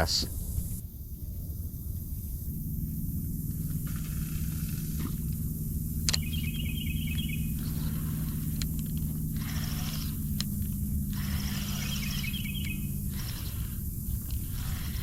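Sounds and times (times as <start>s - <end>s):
low mechanical hum: 0.0s - 15.0s
light hiss: 3.0s - 15.0s
sharp click: 6.0s - 6.6s
quick high ticks: 6.0s - 15.0s.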